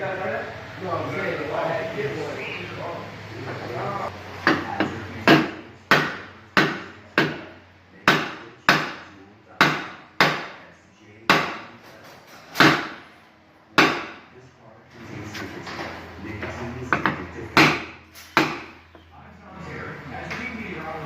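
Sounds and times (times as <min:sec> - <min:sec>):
hammer striking metal: 0:04.4 - 0:10.6, 0:11.3 - 0:11.8, 0:12.6 - 0:13.1, 0:13.8 - 0:14.3.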